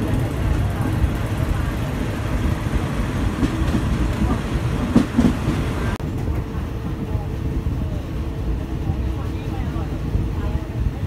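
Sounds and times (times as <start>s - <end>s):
train wheels clacking: 0.0s - 6.6s
train rumbling on rails: 0.0s - 11.0s.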